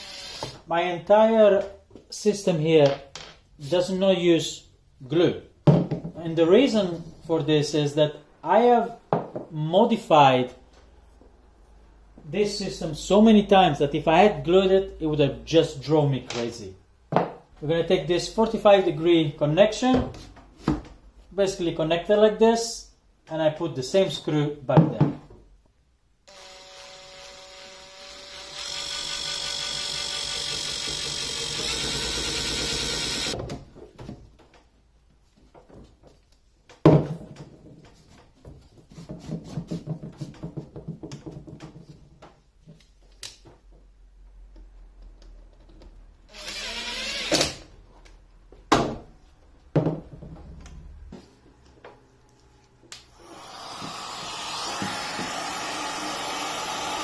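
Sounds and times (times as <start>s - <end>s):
power drill driving screws: 0.0s - 0.6s, 26.3s - 33.4s, 46.3s - 47.6s, 53.2s - 57.0s
plastic pipe knocking and rattling: 36.7s - 42.3s.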